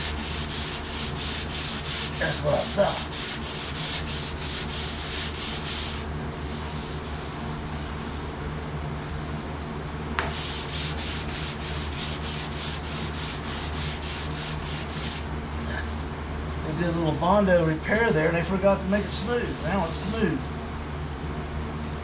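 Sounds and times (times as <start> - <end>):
sanding block scraping sheet metal: 0.0 - 8.3, 10.2 - 20.4
steady low hum: 0.0 - 22.0.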